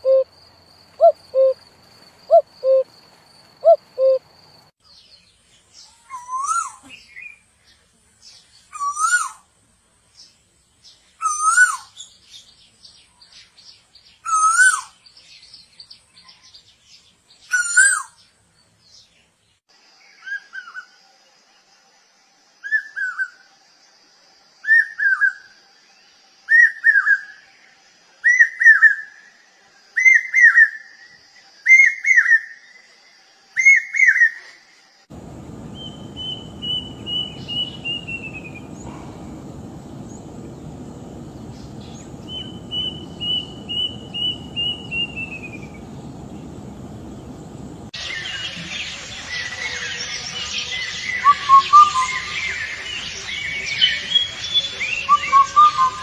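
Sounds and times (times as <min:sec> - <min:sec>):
bird calls: 0:00.0 - 0:00.3, 0:00.9 - 0:01.6, 0:02.3 - 0:02.9, 0:03.5 - 0:04.3, 0:35.2 - 0:48.4
steady hiss: 0:35.1 - 0:49.0.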